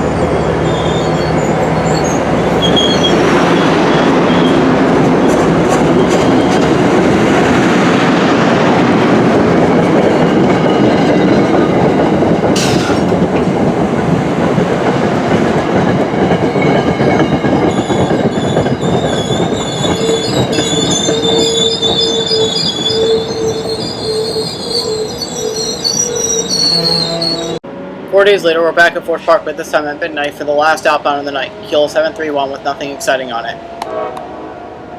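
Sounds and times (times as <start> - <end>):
high wheel squeal: 0.0 - 4.7, 16.6 - 27.6
train wheels rumbling on rails: 0.0 - 27.6.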